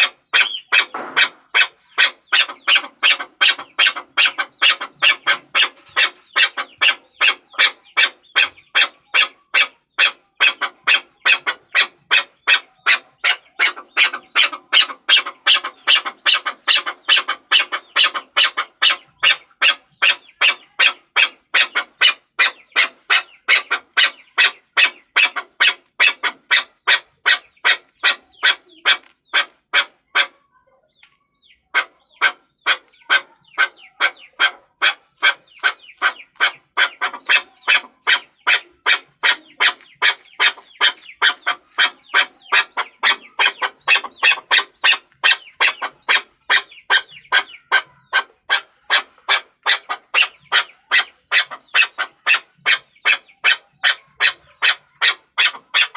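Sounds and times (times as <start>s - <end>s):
partridge calling: 0.0s - 55.9s.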